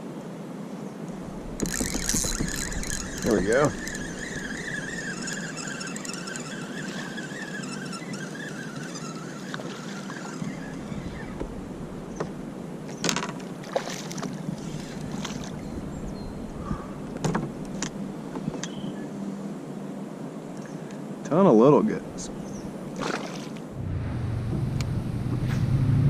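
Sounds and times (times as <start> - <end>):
high whine: 1.1 - 13.0
rushing river water: 1.1 - 15.7, 22.7 - 23.8
water splashes: 13.4 - 15.6, 22.9 - 23.7.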